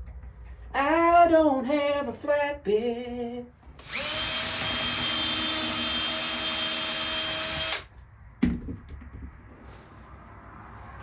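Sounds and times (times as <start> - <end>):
power drill running: 3.8 - 7.9.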